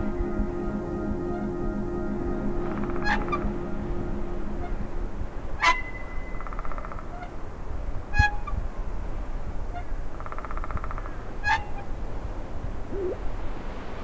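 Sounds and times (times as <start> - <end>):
low droning tone: 0.0 - 7.4
low steady rumble: 0.0 - 9.9
bird-like animal calls: 12.9 - 13.2.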